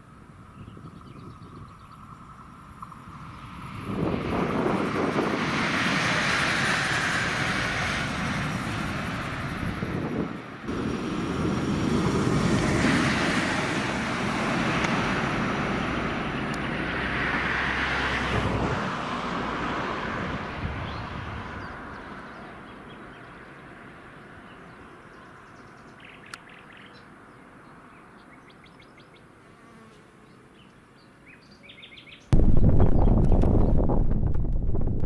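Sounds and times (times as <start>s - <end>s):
train passing with rushing rumble: 0.1s - 24.4s.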